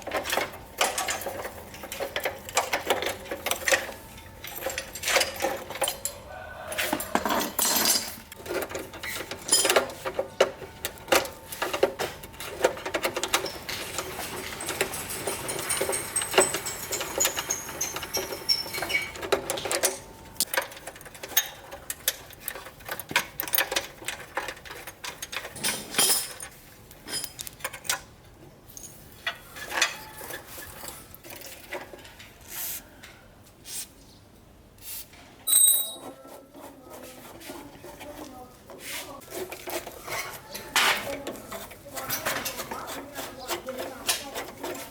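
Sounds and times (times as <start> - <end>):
metallic clinks of hand tools: 13.3 - 19.2, 35.5 - 36.1.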